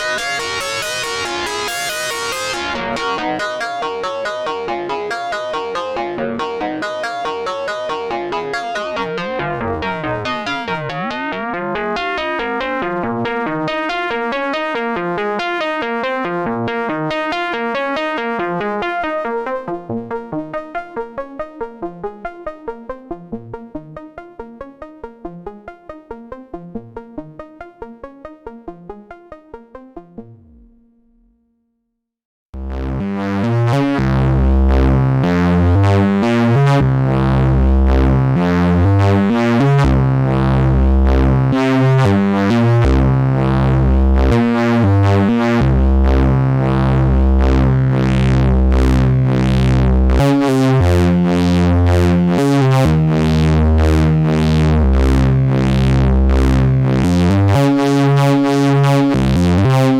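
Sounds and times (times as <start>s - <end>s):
synthesizer sequenced pattern: 0.0s - 30.8s, 32.6s - 59.9s
heavy bass: 32.6s - 59.9s.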